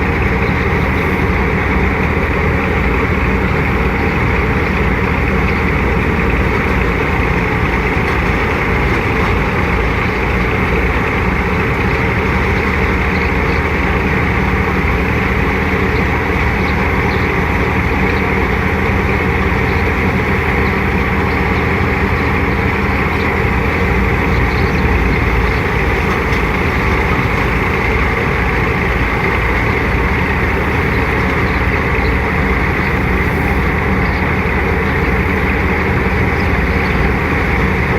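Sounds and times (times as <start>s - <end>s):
thresher running: 0.0s - 37.9s
tractor engine rumble: 0.0s - 37.9s.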